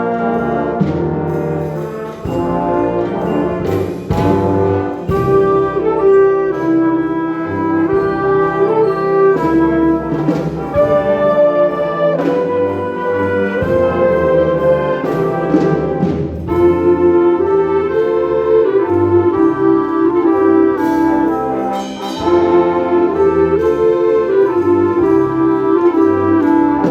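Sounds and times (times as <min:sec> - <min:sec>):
wind band playing: 0:00.0 - 0:26.9
sharp accented strikes: 0:21.3 - 0:23.3.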